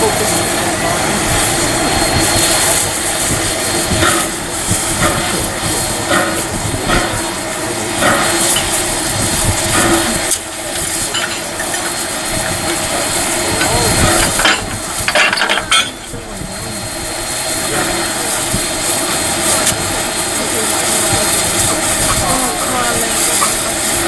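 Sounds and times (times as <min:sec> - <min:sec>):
steam locomotive hiss and rumble: 0:00.0 - 0:24.0.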